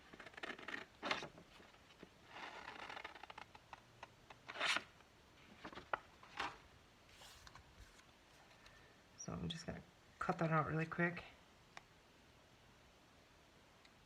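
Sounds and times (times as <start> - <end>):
paper rustling: 4.5 - 8.7.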